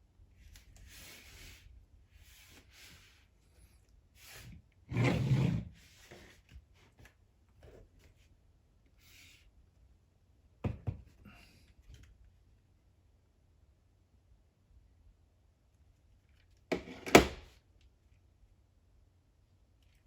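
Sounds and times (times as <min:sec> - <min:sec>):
rustling scrape: 0:00.5 - 0:03.3.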